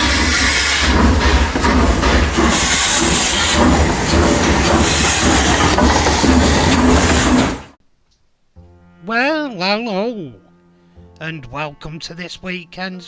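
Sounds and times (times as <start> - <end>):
train rumbling on rails: 0.0 - 7.8.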